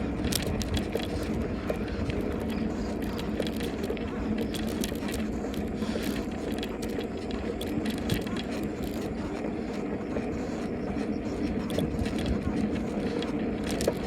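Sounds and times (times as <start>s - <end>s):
bicycle rattling clicks: 0.0s - 14.0s
rushing wind and road noise: 0.0s - 14.0s.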